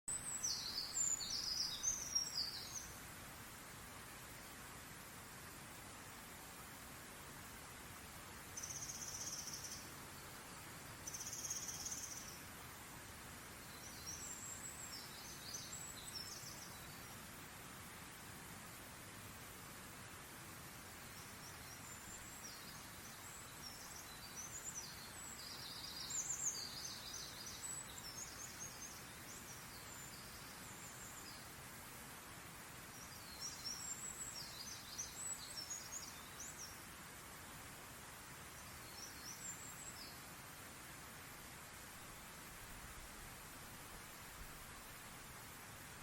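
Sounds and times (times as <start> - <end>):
songbird twittering: 0.1 - 2.9, 11.0 - 12.4
steady background hiss: 0.1 - 46.0.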